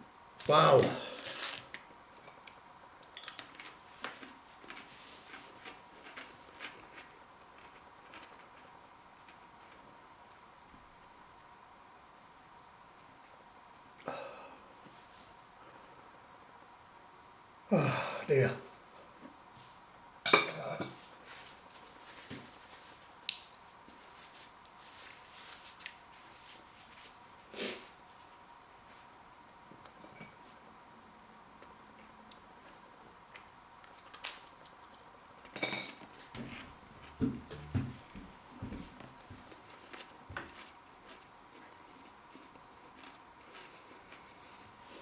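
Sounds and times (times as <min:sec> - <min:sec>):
faint steady hum: 0:00.0 - 0:45.0
man gasping: 0:17.7 - 0:18.3.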